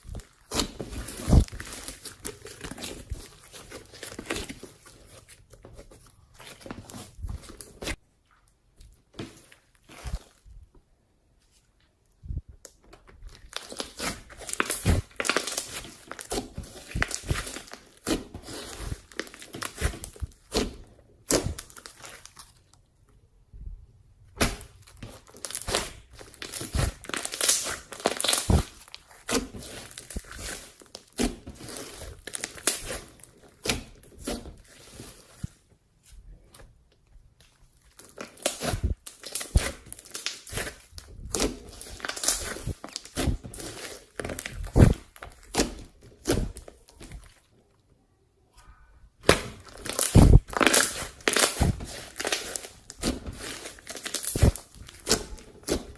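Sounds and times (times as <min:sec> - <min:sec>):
slime crackling and popping: 0:00.0 - 0:05.3, 0:12.7 - 0:22.8, 0:24.4 - 0:35.6, 0:37.4 - 0:47.4, 0:48.7 - 0:55.9.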